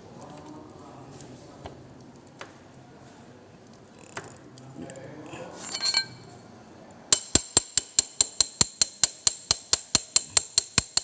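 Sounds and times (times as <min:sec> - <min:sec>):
metal tool clicking: 0:07.1 - 0:11.0.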